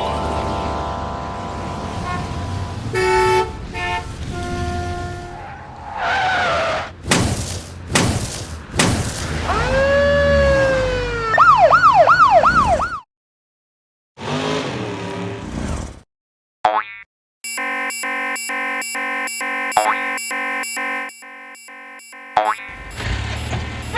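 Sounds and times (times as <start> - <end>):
whooshing bursts: 7.0 - 9.8
cartoon sound effect: 9.4 - 13.0, 17.5 - 23.9
cartoon siren wailing: 9.4 - 13.1, 17.5 - 23.9.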